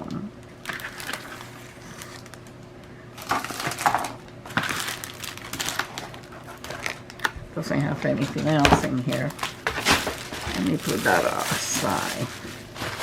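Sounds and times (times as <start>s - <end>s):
plastic and cardboard rustling: 0.6s - 2.5s, 8.0s - 13.0s.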